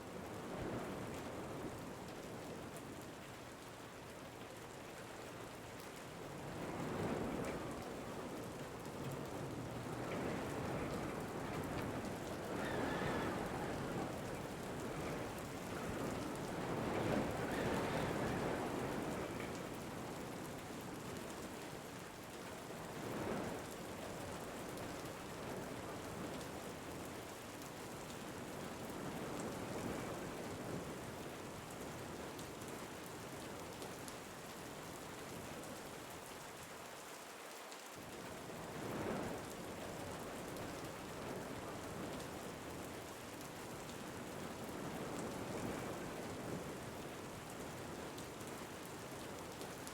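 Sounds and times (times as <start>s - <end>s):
steady rain falling: 0.0s - 49.9s
wind gusts: 6.4s - 21.6s, 44.4s - 48.1s.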